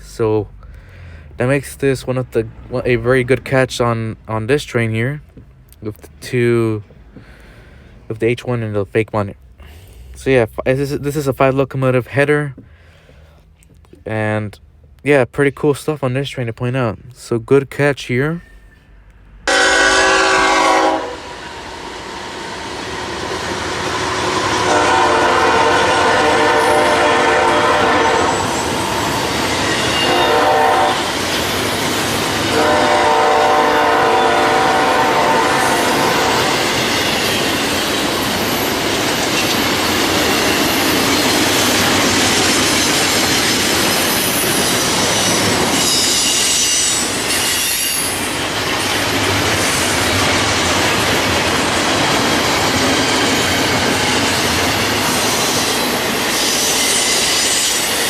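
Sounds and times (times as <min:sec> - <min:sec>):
train wheels on rails: 0:18.7 - 0:58.0
locomotive horn blasts: 0:19.5 - 0:21.4, 0:24.2 - 0:28.8, 0:29.9 - 0:31.2, 0:32.5 - 0:36.7
rail clacking: 0:19.5 - 0:58.0
wheel squeal: 0:43.3 - 0:48.4, 0:56.4 - 0:58.0.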